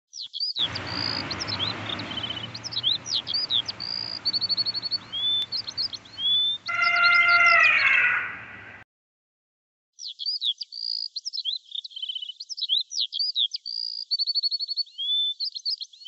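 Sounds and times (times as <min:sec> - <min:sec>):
songbirds singing: 0:00.2 - 0:08.8
lower falling bird call: 0:00.6 - 0:08.8.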